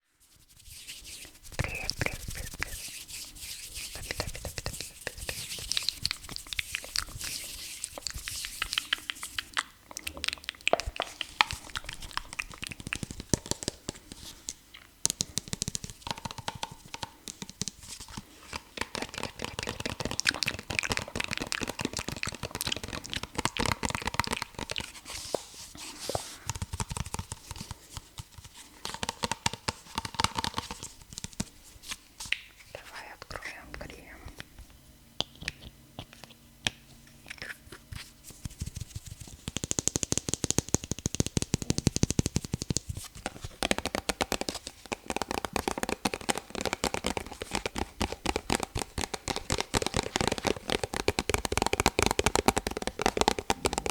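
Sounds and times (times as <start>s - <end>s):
crinkly scratching: 0.2s - 9.5s
rapid tapping: 15.0s - 18.2s, 38.4s - 53.9s.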